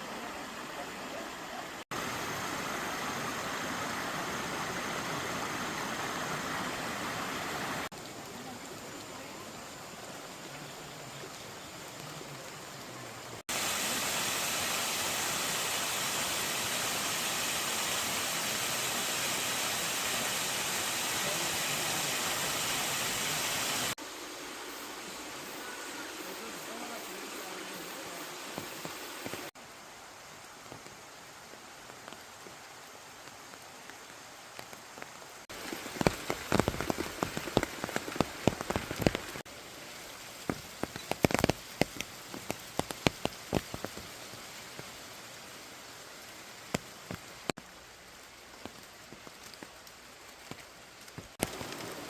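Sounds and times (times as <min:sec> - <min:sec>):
stream water rushing: 0:00.0 - 0:47.5.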